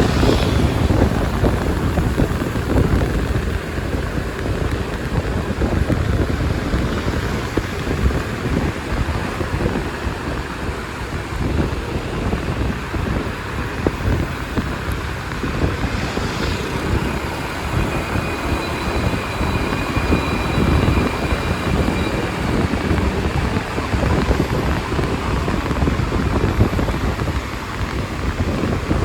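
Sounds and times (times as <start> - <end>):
motorbike engine running: 0.0 - 29.0
surrounding traffic: 0.0 - 29.0
wind buffeting microphone: 0.0 - 29.0
faint high whine: 15.8 - 25.7.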